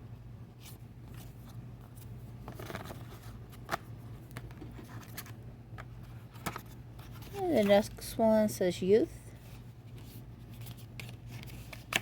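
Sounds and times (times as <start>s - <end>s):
paper rustling: 0.6s - 5.4s, 9.5s - 12.0s.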